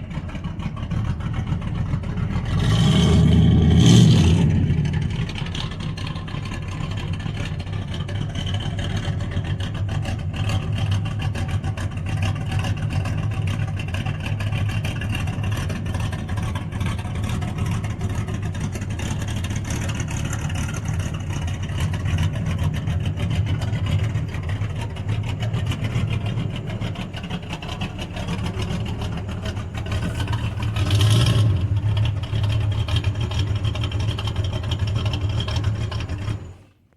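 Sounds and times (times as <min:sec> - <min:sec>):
vee eight engine idling: 0:03.2 - 0:36.7.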